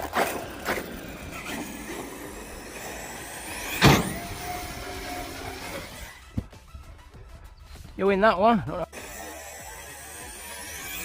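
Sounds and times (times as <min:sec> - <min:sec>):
toy truck motor whine: 0:00.2 - 0:06.4, 0:08.9 - 0:11.0
toy truck landing crash: 0:03.5 - 0:04.5.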